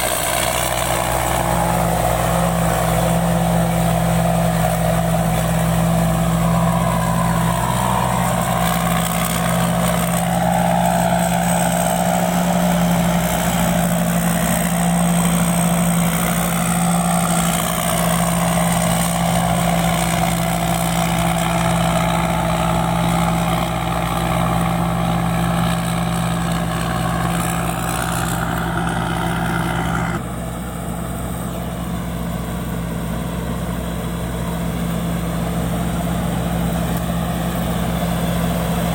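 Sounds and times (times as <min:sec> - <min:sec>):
combine harvester engine running: 0:00.0 - 0:38.9.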